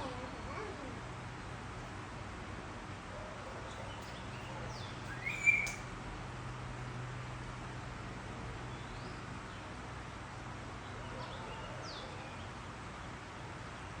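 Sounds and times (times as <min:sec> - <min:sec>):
bird chirps: 0:04.0 - 0:05.9.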